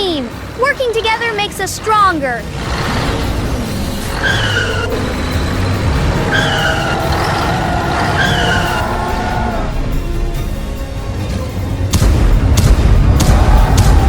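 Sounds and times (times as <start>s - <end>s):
vehicle engines running: 0.0s - 10.8s
tyres skidding squeals: 2.5s - 10.0s.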